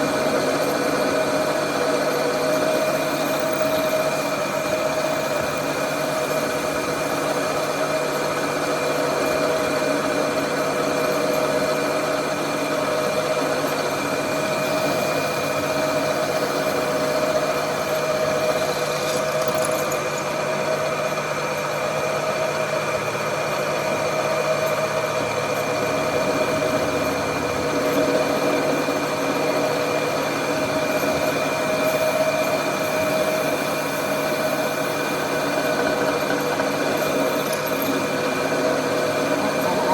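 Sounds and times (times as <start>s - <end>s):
workshop machine humming: 0.0s - 39.9s.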